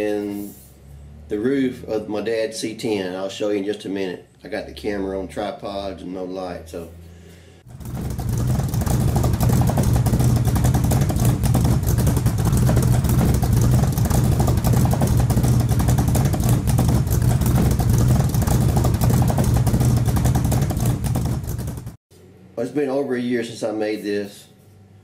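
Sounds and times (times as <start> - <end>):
machine humming and rattling: 7.6 - 22.0.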